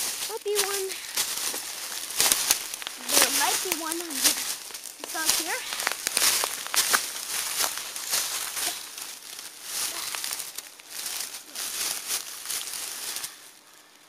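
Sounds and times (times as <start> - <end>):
dry leaves and twigs crackling: 0.0 - 14.0.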